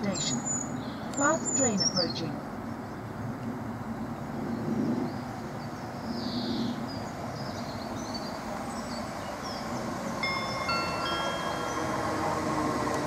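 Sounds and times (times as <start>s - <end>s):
train rumbling: 0.0s - 5.0s, 7.0s - 13.0s
birds chirping: 0.0s - 13.0s
high ringing tones: 10.2s - 13.0s.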